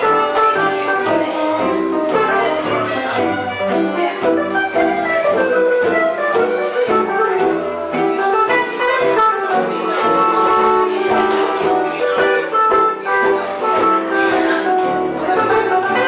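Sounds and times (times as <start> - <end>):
guitar accompaniment: 0.0 - 16.0
live jazz band playing: 0.0 - 16.0.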